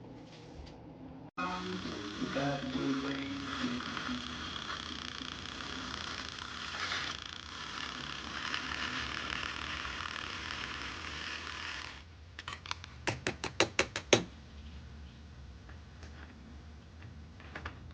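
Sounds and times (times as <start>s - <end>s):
steady hiss: 1.4s - 12.0s.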